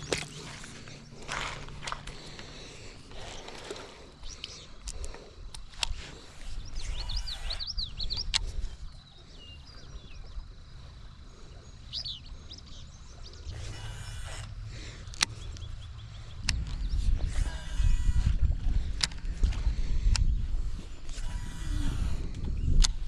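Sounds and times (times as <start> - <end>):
songbirds chirping: 0.0 - 23.0
sharp clicks: 4.3 - 6.1, 6.8 - 8.6, 13.6 - 15.7, 21.1 - 23.0.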